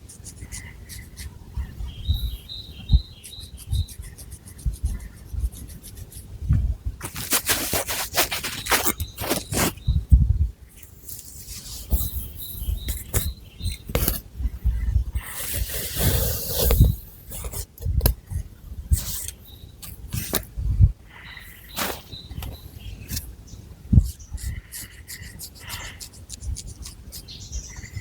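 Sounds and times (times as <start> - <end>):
fingernails scratching hair and scalp: 7.0 - 9.8, 21.7 - 22.2, 24.0 - 27.4.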